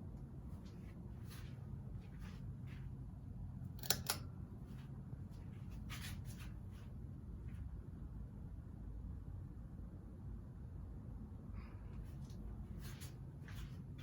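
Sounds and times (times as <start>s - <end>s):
ceiling fan motor humming: 0.0s - 14.0s.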